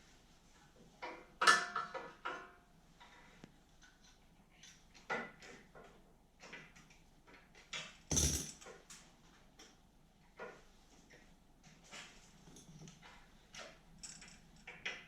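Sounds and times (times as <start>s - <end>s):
hand tools and parts clicking: 8.1s - 8.7s.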